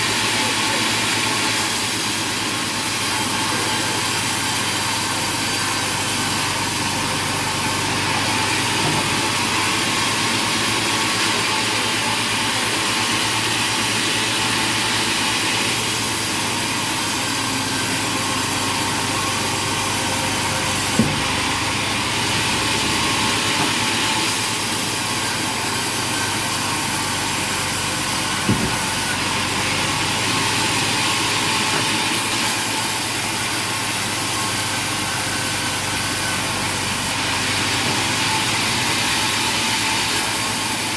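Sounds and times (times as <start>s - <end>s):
sawmill machinery running: 0.0s - 40.9s
sharp knocks: 20.9s - 21.4s, 28.4s - 29.0s.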